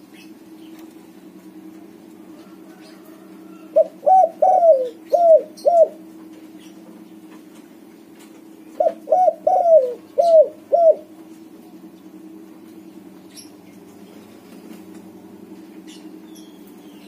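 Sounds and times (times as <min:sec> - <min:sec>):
dove cooing: 0:02.2 - 0:06.8, 0:08.4 - 0:11.3.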